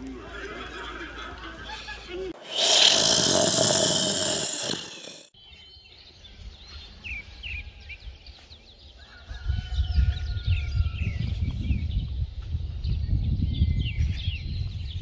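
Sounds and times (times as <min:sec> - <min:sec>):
loud hiss: 0:02.4 - 0:05.3.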